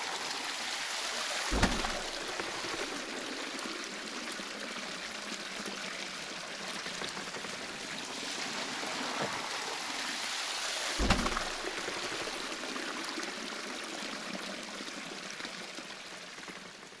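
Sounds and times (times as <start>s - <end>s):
water splashing at waterwheel: 0.0s - 17.0s
low thump: 1.5s - 3.1s, 11.0s - 12.4s.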